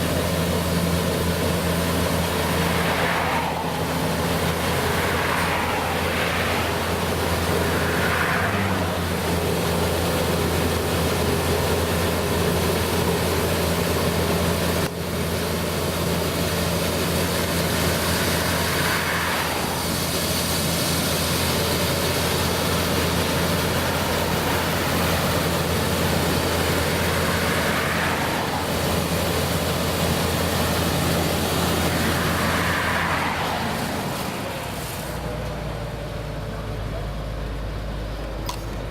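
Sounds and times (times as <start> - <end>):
farm machine engine droning: 0.0 - 38.9.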